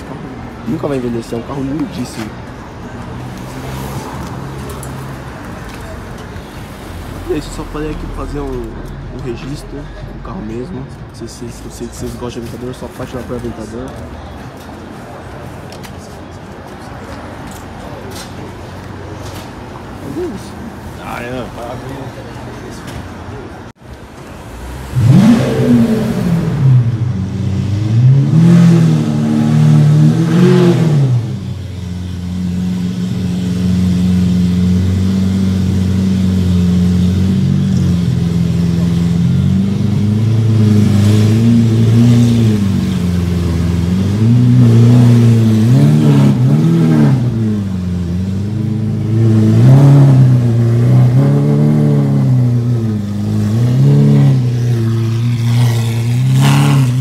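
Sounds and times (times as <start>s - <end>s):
car engine revving and idling: 24.3s - 57.0s.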